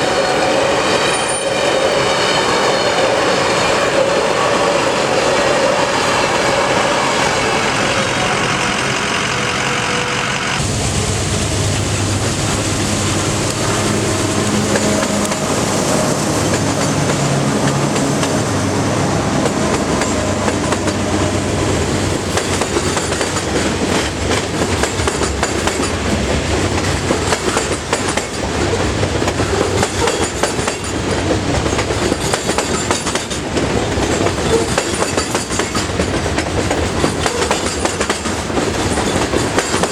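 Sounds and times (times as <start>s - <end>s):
diesel locomotive engine drone: 0.0s - 39.9s
train wheels clattering over rail joints: 19.4s - 39.9s.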